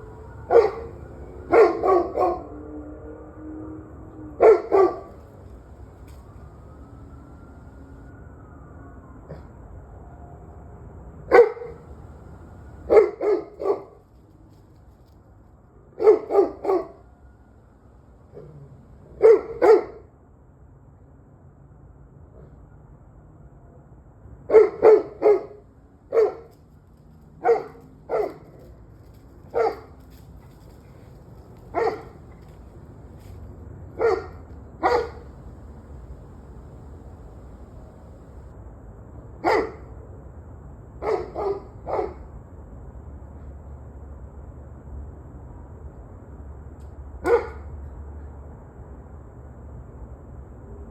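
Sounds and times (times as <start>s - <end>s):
dog barking: 0.4s - 2.5s, 4.4s - 5.3s, 11.3s - 11.8s, 12.8s - 14.0s, 16.0s - 17.0s, 19.2s - 20.1s, 24.5s - 26.5s, 27.4s - 28.6s, 29.5s - 30.0s, 31.7s - 32.3s, 34.0s - 35.3s, 39.4s - 39.8s, 41.0s - 42.2s, 47.2s - 47.6s.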